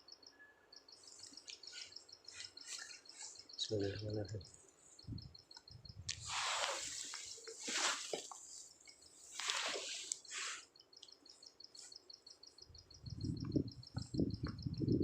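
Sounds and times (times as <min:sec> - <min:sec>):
rapid high chirping: 0:00.8 - 0:07.5, 0:10.2 - 0:15.0.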